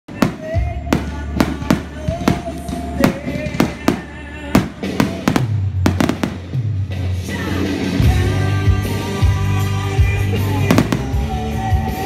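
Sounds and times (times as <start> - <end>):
fireworks bursting: 0.1 - 8.0, 10.3 - 12.0
music with deep bass: 0.1 - 12.0.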